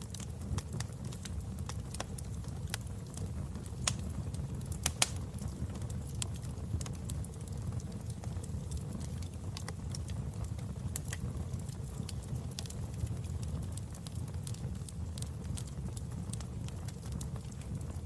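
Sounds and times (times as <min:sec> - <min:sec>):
sharp pops of fire: 0:00.0 - 0:10.2
wood fire crackling: 0:00.0 - 0:18.0.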